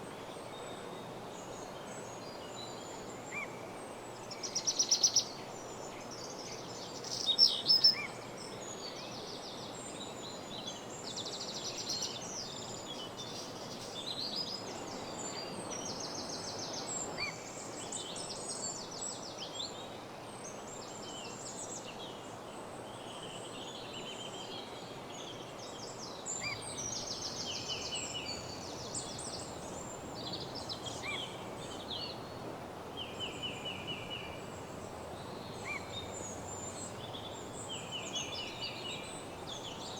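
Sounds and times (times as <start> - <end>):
faint background noise: 0.0 - 39.9
songbirds singing and trilling: 26.2 - 39.9.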